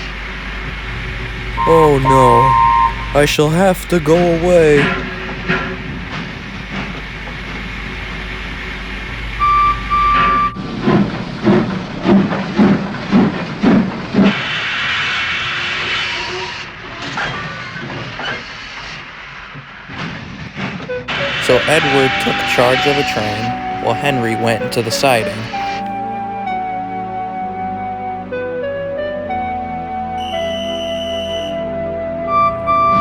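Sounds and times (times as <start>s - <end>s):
steam whistle toots: 1.6s - 3.2s, 30.2s - 31.6s.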